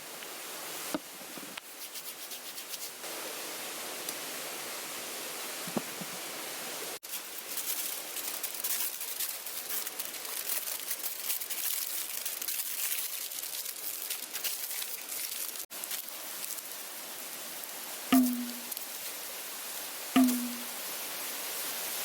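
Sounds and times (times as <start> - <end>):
steady hiss: 0.0 - 11.5, 15.6 - 22.0
aluminium foil crinkling: 7.0 - 16.9, 18.7 - 19.2.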